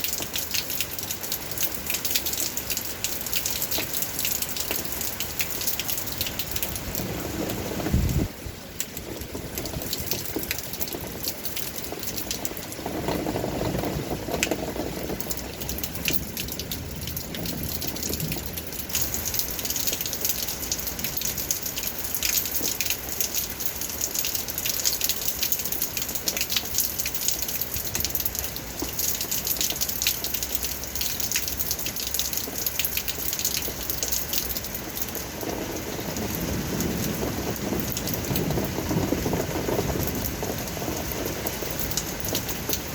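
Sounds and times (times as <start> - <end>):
rain drops pattering: 0.0 - 42.9
rush of water: 0.0 - 42.9.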